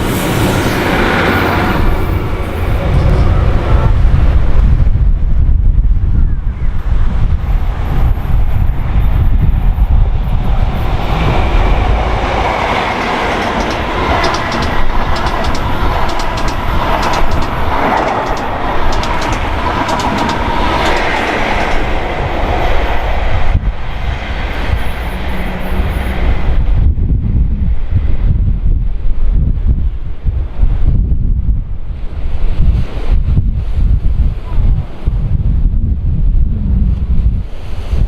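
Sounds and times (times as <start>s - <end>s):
wind buffeting microphone: 0.0s - 38.0s
train wheels clicking over rail joints: 10.8s - 26.2s.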